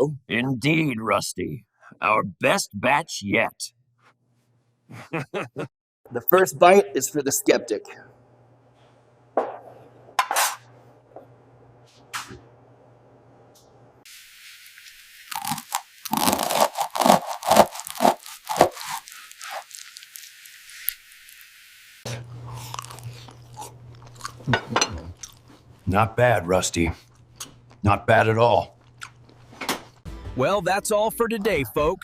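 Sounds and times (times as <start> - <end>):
crunching: 15.3 - 21.4
person chewing pastry: 15.3 - 21.4, 22.1 - 25.9, 28.7 - 30.0.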